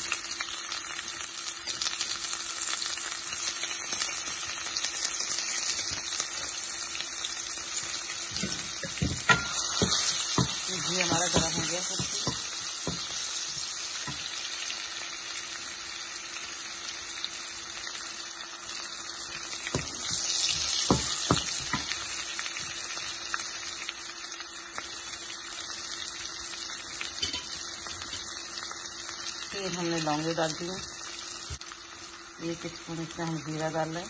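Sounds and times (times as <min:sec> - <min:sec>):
onions and spices sizzling: 0:00.0 - 0:34.0
wooden spatula knocking on pan: 0:08.4 - 0:13.2, 0:19.7 - 0:22.0.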